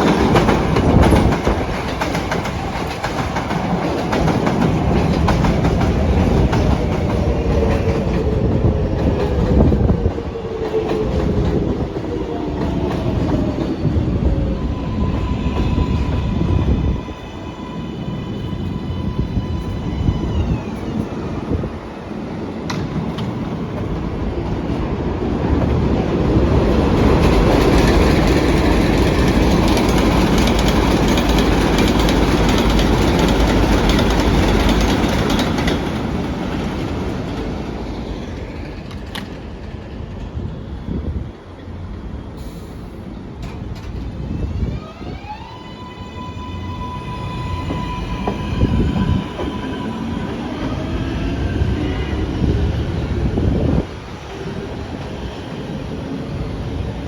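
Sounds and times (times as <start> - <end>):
train wheel clatter: 0.0 - 14.4, 22.6 - 40.7
subway train rumbling past: 0.0 - 57.0.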